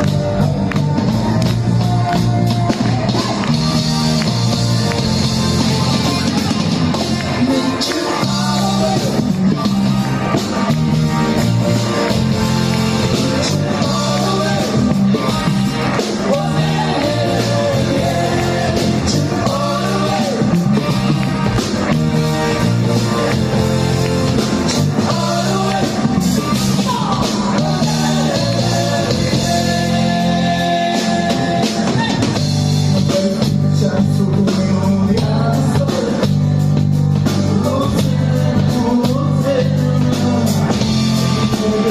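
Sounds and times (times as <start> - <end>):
rock band playing: 0.0 - 41.9
person singing lead vocal: 7.2 - 9.7, 13.4 - 21.0, 24.7 - 36.5, 37.2 - 41.9.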